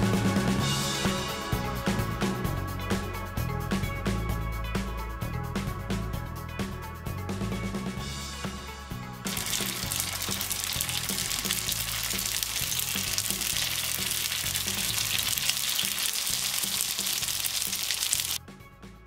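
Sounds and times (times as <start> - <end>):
dumplings sizzling in oil: 9.3 - 18.4.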